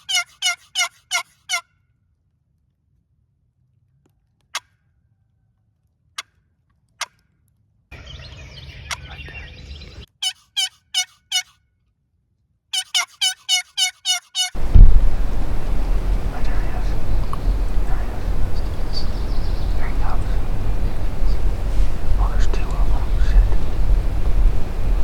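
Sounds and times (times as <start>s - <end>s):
turkey yelps: 0.0s - 1.6s, 10.1s - 11.6s, 12.8s - 14.6s.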